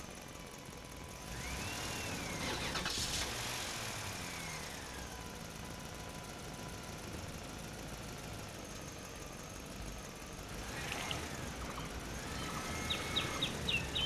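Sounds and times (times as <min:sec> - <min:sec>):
bird chirps: 0:10.9 - 0:14.0.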